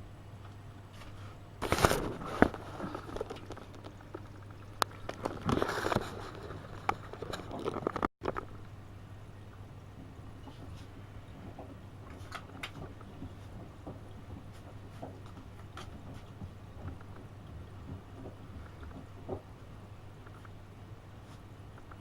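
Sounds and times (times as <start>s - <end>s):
laundry tumbling and splashing: 1.6s - 8.1s.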